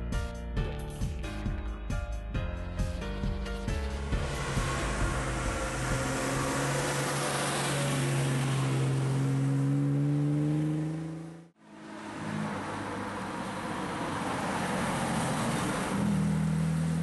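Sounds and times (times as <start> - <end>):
sports car engine driving past: 3.9 - 17.0.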